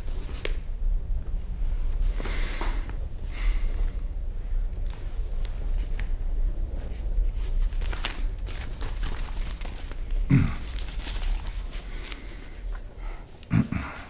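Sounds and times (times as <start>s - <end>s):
newspaper pages rustling: 0.0s - 0.6s, 4.8s - 13.2s.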